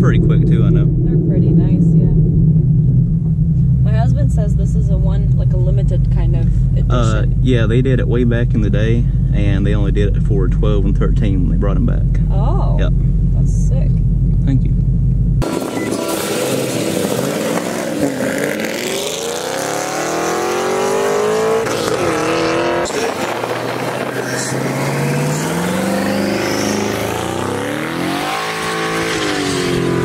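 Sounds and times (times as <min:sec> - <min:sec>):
car engine accelerating through gears: 0:14.3 - 0:30.0.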